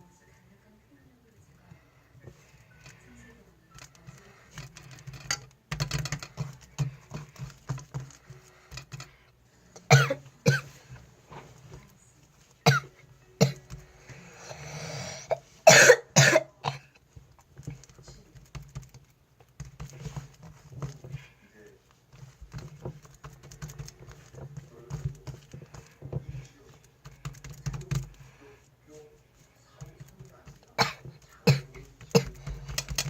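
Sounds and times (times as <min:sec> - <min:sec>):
person coughing: 0:09.9 - 0:10.8, 0:12.6 - 0:13.7, 0:15.2 - 0:17.0, 0:30.8 - 0:32.5.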